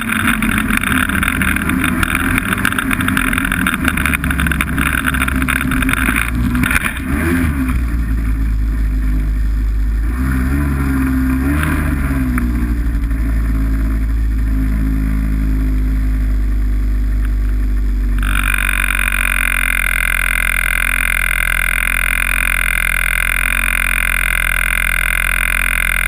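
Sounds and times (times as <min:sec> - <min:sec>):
snowmobile engine running: 0:00.0 - 0:26.0
steady high-pitched sound: 0:18.2 - 0:26.0.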